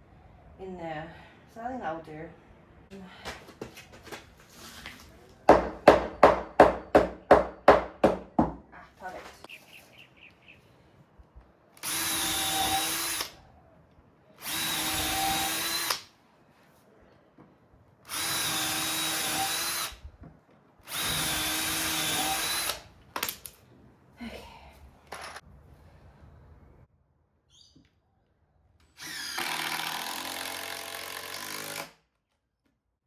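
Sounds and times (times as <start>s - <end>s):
power drill driving screws: 11.8s - 13.4s, 14.4s - 16.1s, 18.1s - 20.0s, 20.8s - 22.9s, 25.1s - 25.4s, 29.0s - 32.0s.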